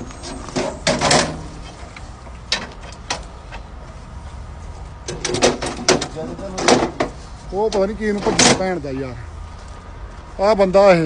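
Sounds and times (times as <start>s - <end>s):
sharp knocks and clatters: 0.3s - 1.8s, 5.0s - 7.2s.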